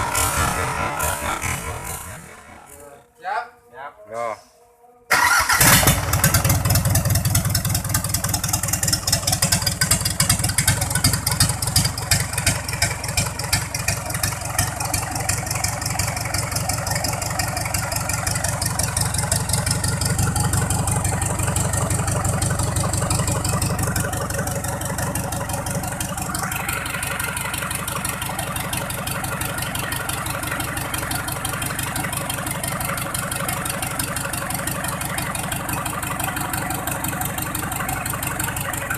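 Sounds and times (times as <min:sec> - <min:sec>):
single-cylinder diesel engine running: 0:05.1 - 0:38.9.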